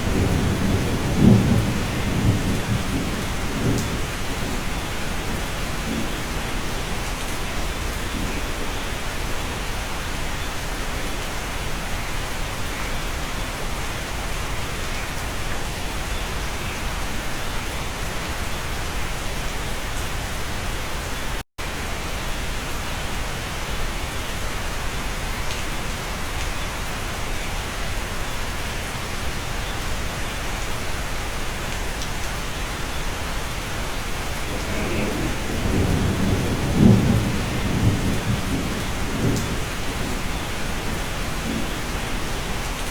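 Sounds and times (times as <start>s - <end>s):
thunder rumbling: 0.0s - 8.8s, 33.8s - 42.9s
steady rain: 0.0s - 42.9s.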